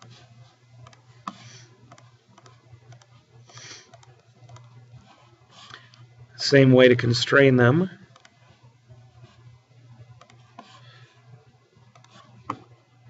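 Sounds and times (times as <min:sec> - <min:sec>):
steady low hum: 0:00.0 - 0:13.0
mouse and keyboard clicks: 0:00.8 - 0:03.1, 0:03.9 - 0:04.8, 0:10.2 - 0:10.7, 0:11.9 - 0:12.7.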